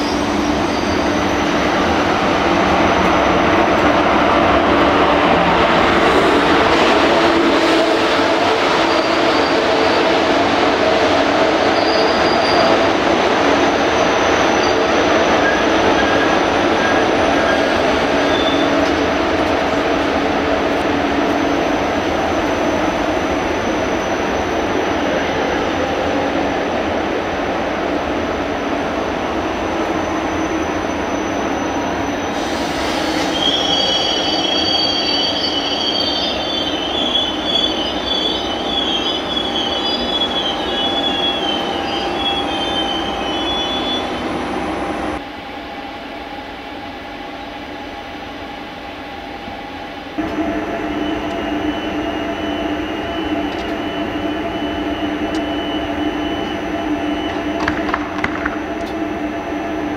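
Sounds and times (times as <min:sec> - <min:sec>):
high wavering wheel squeal: 0:00.0 - 0:01.8, 0:11.3 - 0:13.0, 0:13.6 - 0:19.2, 0:30.0 - 0:44.6, 0:50.4 - 0:58.0
train rumbling on rails: 0:00.0 - 0:59.9.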